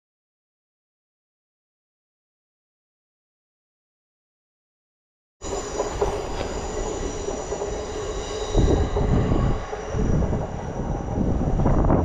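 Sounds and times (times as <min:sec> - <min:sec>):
heavy low rumble: 0:05.4 - 0:12.0
steady high-pitched tones: 0:05.4 - 0:12.0
train running on tracks: 0:05.4 - 0:12.0.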